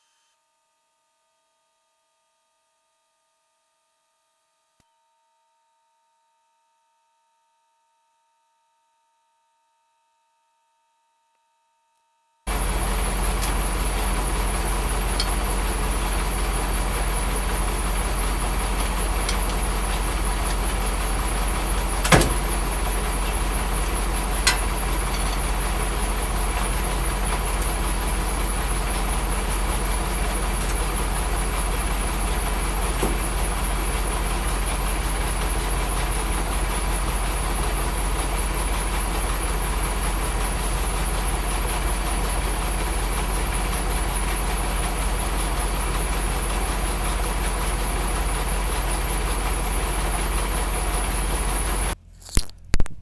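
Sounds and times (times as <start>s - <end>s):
diesel truck engine idling: 12.5s - 52.0s.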